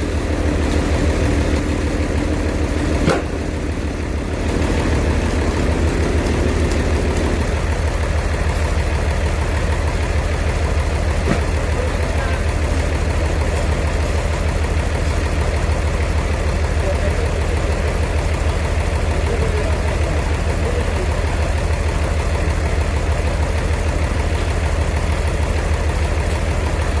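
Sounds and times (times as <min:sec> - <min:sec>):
machinery engine throbbing: 0:00.0 - 0:27.0
faint voices: 0:11.2 - 0:13.0, 0:16.7 - 0:21.9.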